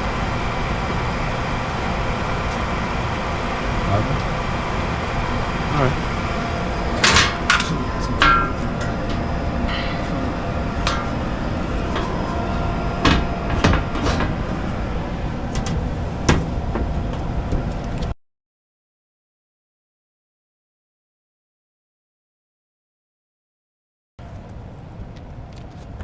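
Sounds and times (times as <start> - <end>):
furnace running noise: 0.0 - 18.2
sharp knocks and clanks: 5.8 - 14.8, 15.5 - 17.8.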